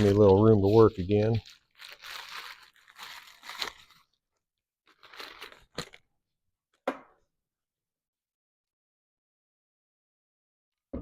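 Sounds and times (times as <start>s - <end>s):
packaging rustling and crinkling: 0.0s - 4.2s, 4.8s - 6.1s.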